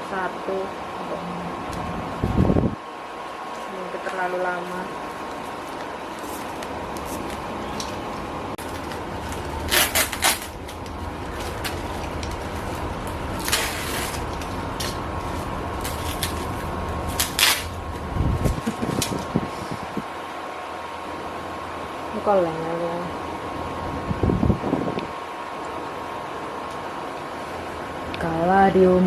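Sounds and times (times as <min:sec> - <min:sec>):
electric fan humming: 0:00.0 - 0:29.0
packing crinkling: 0:05.1 - 0:19.3.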